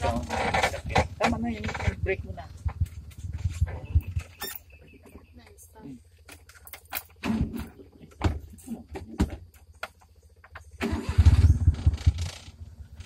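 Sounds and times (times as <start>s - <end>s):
van engine starting and idling: 6.3s - 13.0s.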